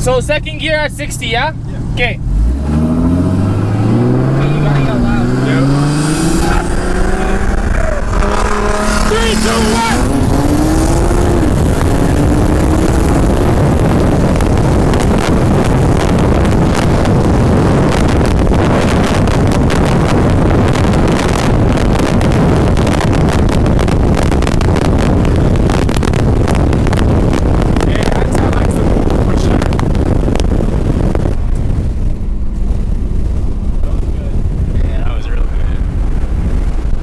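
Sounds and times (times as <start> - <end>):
car engine accelerating: 0.0 - 37.0
wind and road rush: 0.0 - 37.0
wind buffeting microphone: 0.0 - 37.0.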